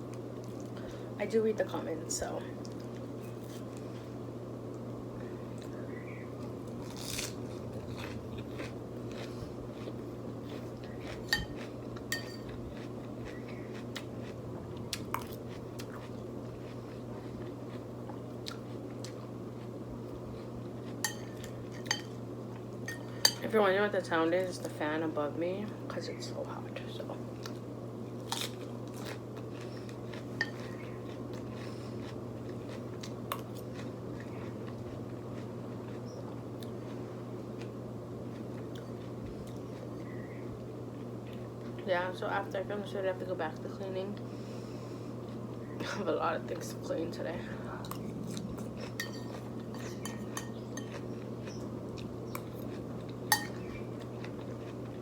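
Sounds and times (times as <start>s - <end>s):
overhead fan humming: 0.0s - 55.0s
chewing food: 2.6s - 23.5s, 27.3s - 41.8s, 44.9s - 45.9s, 47.6s - 55.0s
metal spoon clinking on plate: 11.3s - 12.5s, 21.1s - 22.2s, 49.0s - 51.0s, 53.3s - 53.6s.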